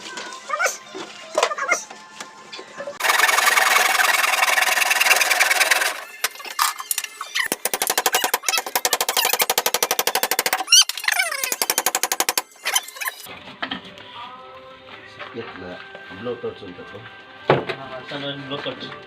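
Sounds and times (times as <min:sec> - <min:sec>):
fast mechanical rattle: 0:03.0 - 0:13.0.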